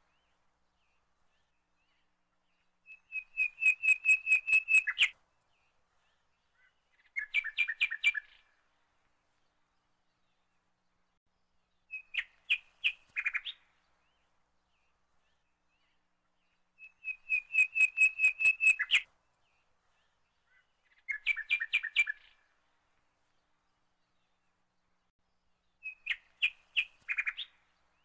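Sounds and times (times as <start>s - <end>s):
small bird chirping: 2.9s - 5.2s, 6.5s - 8.5s, 11.8s - 14.2s, 15.3s - 19.1s, 20.0s - 22.5s, 25.8s - 28.0s.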